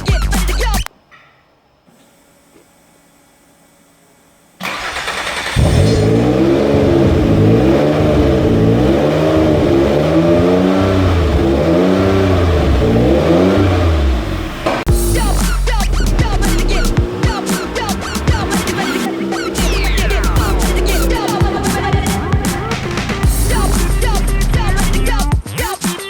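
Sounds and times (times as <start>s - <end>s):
car engine starting and revving: 4.6s - 25.3s.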